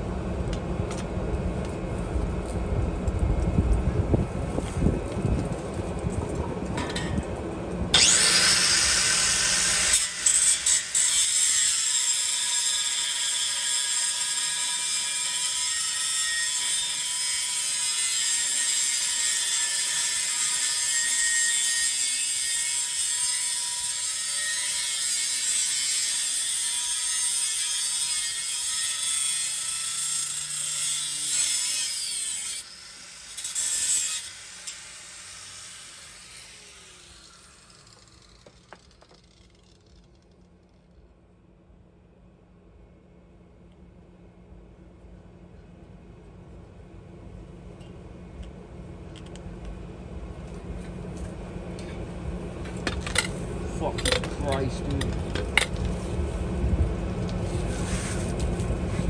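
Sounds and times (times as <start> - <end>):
power tool cutting steel pipe: 8.0 - 40.0.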